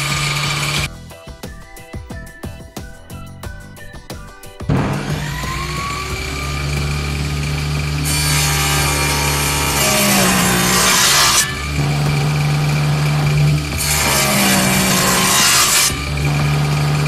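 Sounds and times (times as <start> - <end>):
saw rasping through wood: 0.0 - 0.9, 4.7 - 17.0
table saw motor hum: 0.0 - 0.9, 4.7 - 17.0.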